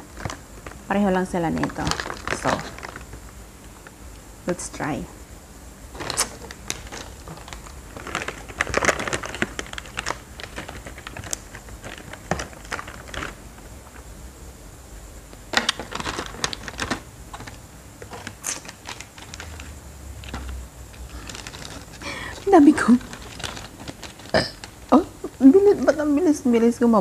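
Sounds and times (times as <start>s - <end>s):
crunchy chewing: 5.9s - 14.1s, 15.4s - 25.5s.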